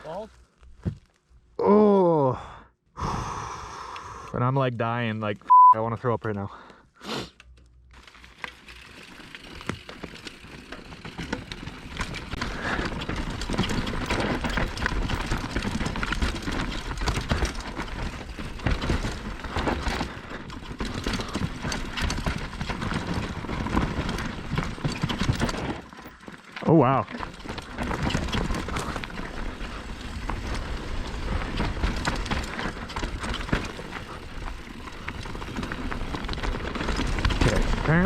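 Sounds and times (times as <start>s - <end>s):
bike rattling: 7.4s - 38.0s
tyres crunching over dirt: 7.9s - 38.0s.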